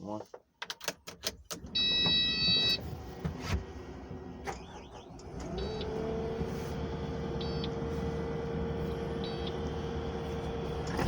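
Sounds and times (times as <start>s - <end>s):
electric motor whining: 3.9s - 11.0s.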